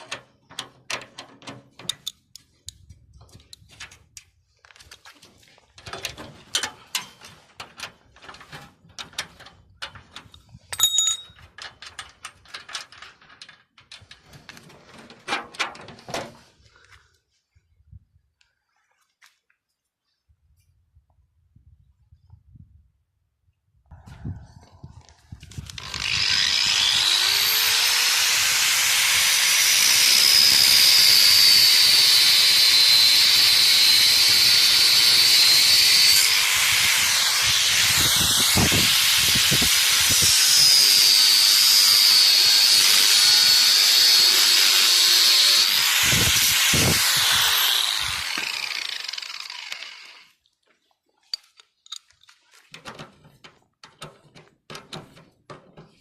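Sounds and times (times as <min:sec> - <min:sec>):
power tool whining on metal: 0:25.7 - 0:50.3.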